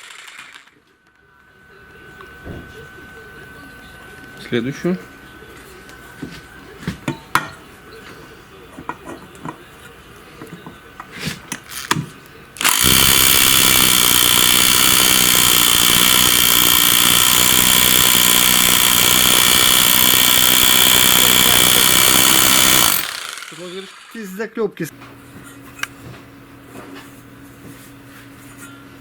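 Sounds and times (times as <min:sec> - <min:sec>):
electric power tool running: 0:00.0 - 0:00.7, 0:12.6 - 0:24.2.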